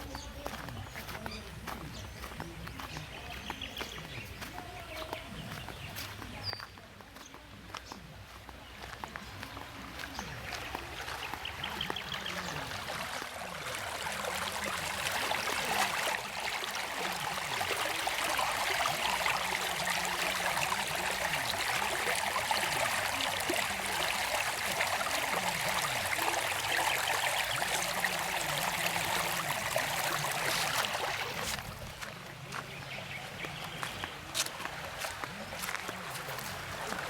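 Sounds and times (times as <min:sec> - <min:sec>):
water running: 0:08.6 - 0:37.0.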